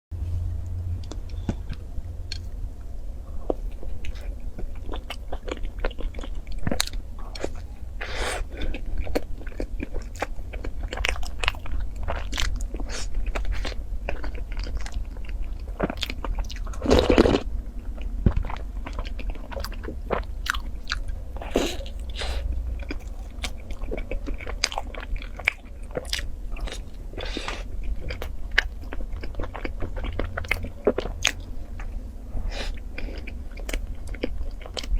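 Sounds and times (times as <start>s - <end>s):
steady low hum: 0.1s - 34.9s
person chewing and crunching: 1.0s - 34.9s.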